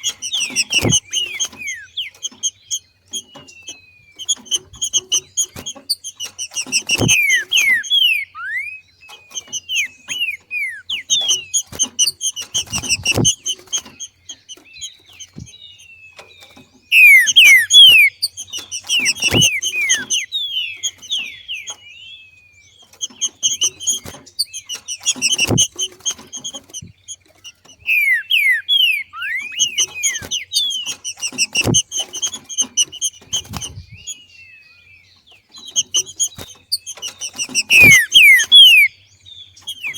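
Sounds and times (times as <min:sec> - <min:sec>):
bird chattering call: 0:00.0 - 0:15.8, 0:16.9 - 0:21.9, 0:22.8 - 0:34.3, 0:35.6 - 0:39.9.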